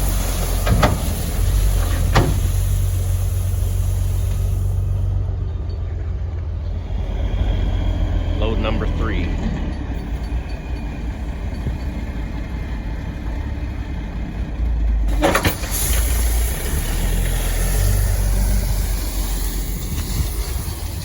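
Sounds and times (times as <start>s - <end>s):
steady hiss: 0.0s - 5.2s
heavy diesel truck engine running: 0.0s - 21.0s.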